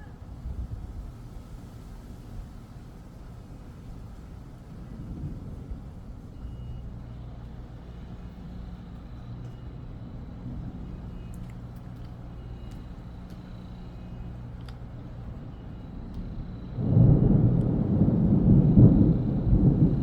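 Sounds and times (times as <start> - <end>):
faint ticks: 10.4 - 15.2, 15.8 - 16.6.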